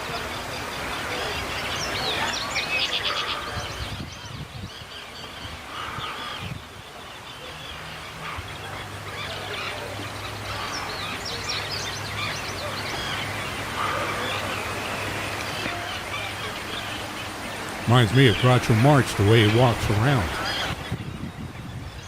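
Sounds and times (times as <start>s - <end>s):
waterbirds calling: 0.0s - 22.0s.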